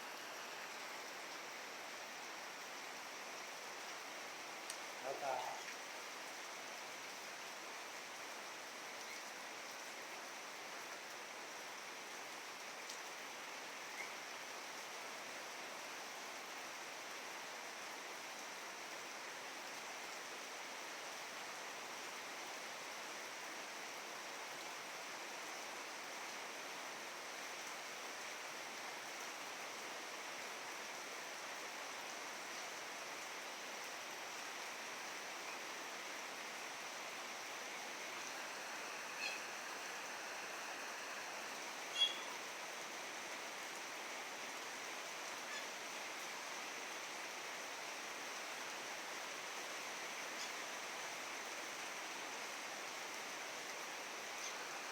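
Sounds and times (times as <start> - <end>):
rain falling: 0.0 - 54.9
bird calls: 41.9 - 42.4.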